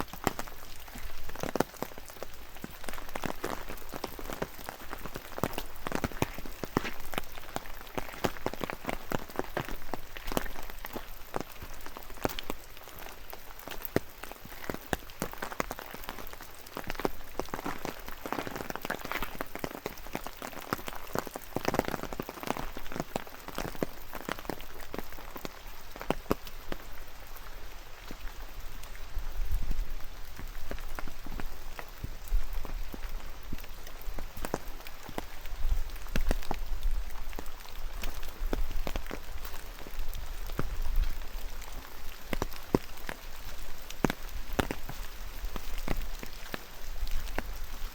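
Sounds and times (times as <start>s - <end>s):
rain drops pattering: 0.0s - 47.9s
wind rumbling on microphone: 25.8s - 47.9s.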